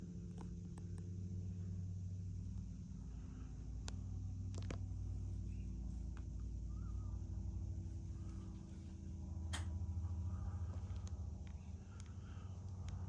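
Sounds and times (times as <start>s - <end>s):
ceiling fan motor humming: 0.0s - 13.0s
faint clicks: 9.5s - 9.8s, 10.7s - 13.0s.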